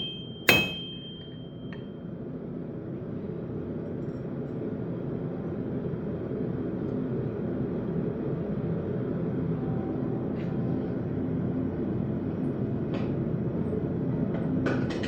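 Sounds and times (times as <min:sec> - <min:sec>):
hammer striking steel on anvil: 0:00.0 - 0:02.0.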